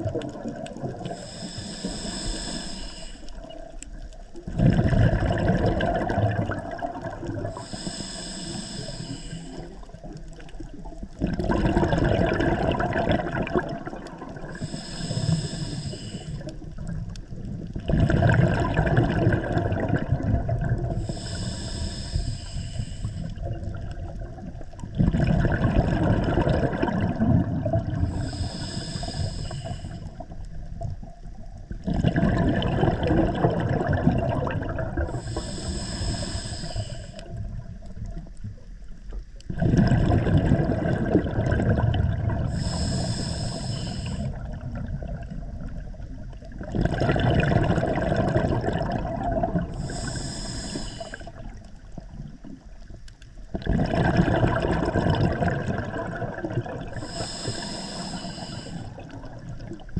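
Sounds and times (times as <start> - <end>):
exhaled bubbles rumbling: 0.0 - 8.0, 8.8 - 59.9
regulator hiss: 1.2 - 3.5, 7.6 - 9.9, 14.6 - 16.5, 21.0 - 23.3, 28.2 - 30.3, 35.2 - 37.4, 42.5 - 44.4, 49.8 - 51.4, 57.0 - 59.0.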